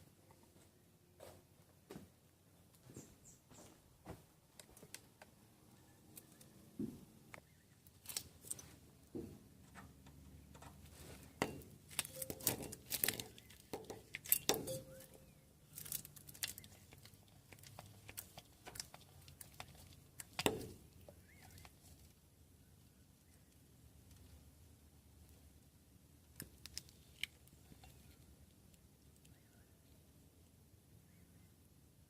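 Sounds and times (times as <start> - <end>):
clicks of small hard objects: 11.4 - 22.0.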